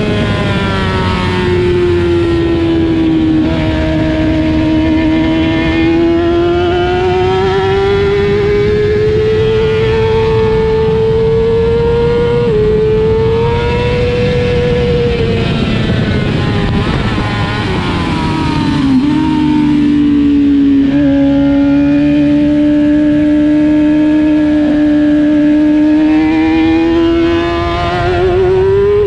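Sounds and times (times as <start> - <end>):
rush of noise: 0.0 - 23.6
race motorcycle engine revving: 0.0 - 29.0.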